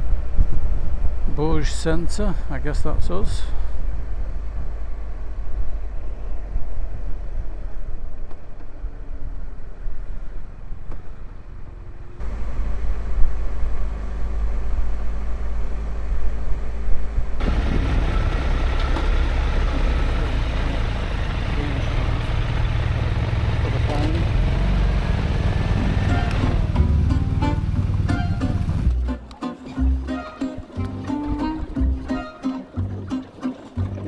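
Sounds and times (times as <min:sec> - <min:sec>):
wind on microphone: 0:17.4 - 0:19.1
motorcycle engine running: 0:17.4 - 0:29.1.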